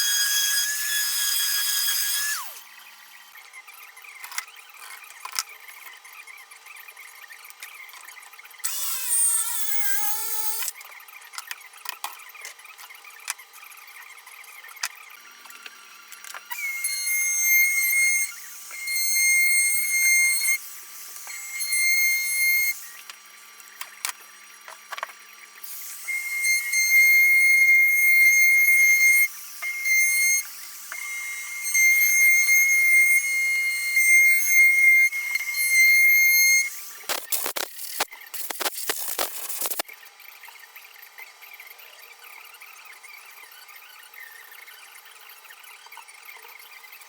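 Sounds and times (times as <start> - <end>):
power tool whining: 0.0 - 2.8, 15.4 - 39.8.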